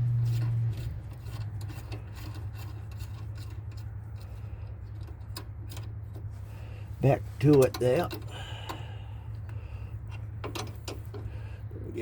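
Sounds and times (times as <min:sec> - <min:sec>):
wrench scraping metal on metal: 0:00.0 - 0:06.7
steady low hum: 0:00.0 - 0:12.0.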